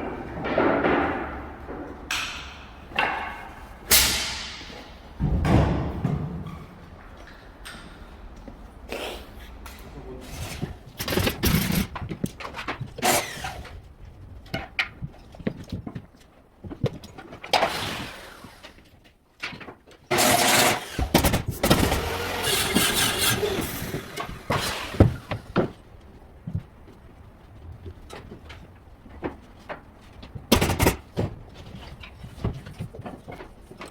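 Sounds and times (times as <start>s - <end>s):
carpentry knocks and clatter: 0.0s - 8.0s, 10.6s - 13.7s, 27.7s - 33.9s
noisy carpentry work: 0.0s - 33.9s.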